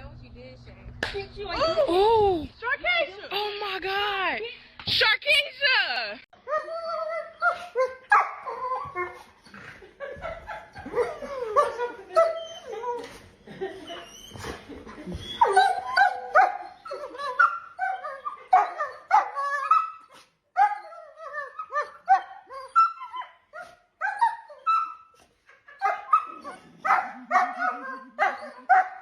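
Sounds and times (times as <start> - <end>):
dog barking and whining: 6.4 - 9.6, 10.7 - 13.2, 13.8 - 29.0.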